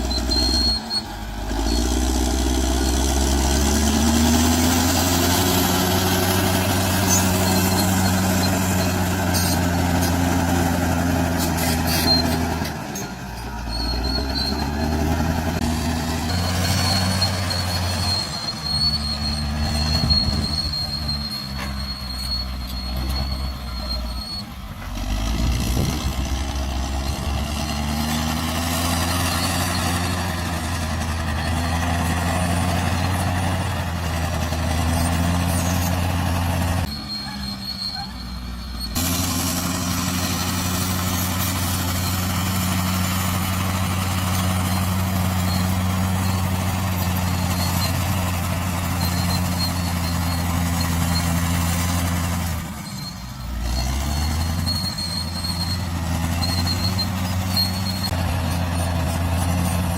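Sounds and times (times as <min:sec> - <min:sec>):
bulldozer diesel engine: 0:00.0 - 0:59.9
high metallic squeal: 0:00.0 - 0:59.9.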